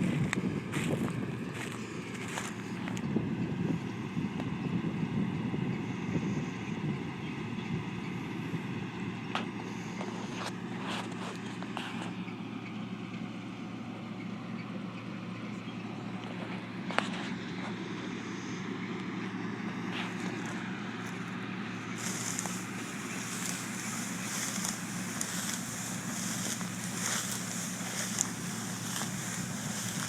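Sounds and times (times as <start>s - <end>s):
harvest machinery engine hum: 0.0s - 30.0s
high hissing rush: 22.0s - 30.0s.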